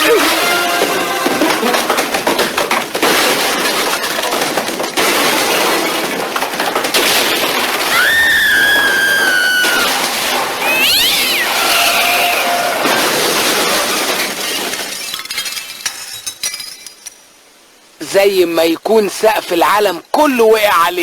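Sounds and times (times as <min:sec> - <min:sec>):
noisy clatter: 0:00.0 - 0:17.2
cat yowling: 0:07.9 - 0:10.0, 0:10.6 - 0:12.9.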